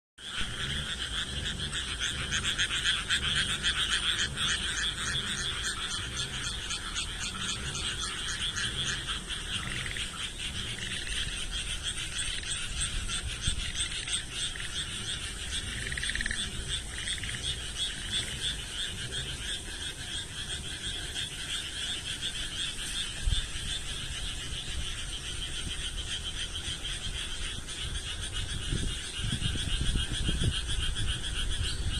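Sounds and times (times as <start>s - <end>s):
frogs croaking in chorus: 0.2s - 31.9s.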